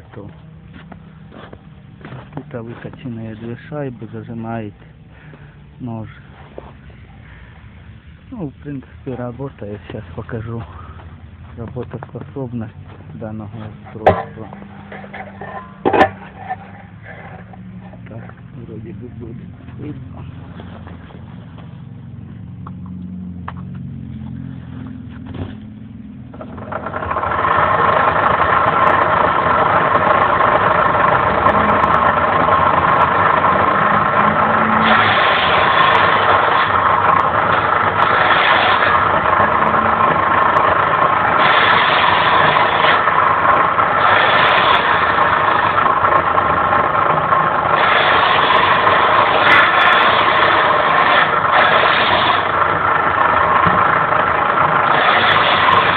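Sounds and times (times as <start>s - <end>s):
circular saw humming and whining: 26.3s - 46.0s, 47.2s - 52.9s, 54.8s - 55.9s.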